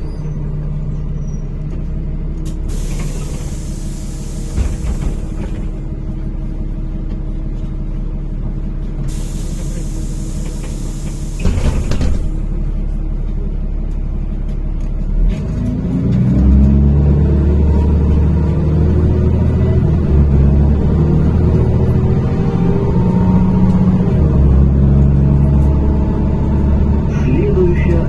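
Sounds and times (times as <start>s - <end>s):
clunks: 0.0s - 6.3s, 9.0s - 13.4s
bus engine idling: 0.0s - 15.2s, 17.0s - 28.0s.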